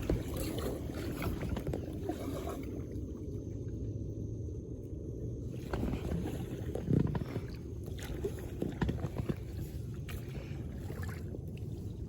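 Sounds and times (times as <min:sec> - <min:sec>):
short knocks and splashes: 0:00.0 - 0:03.0, 0:05.6 - 0:11.8
boat motor rumble on water: 0:00.0 - 0:12.0.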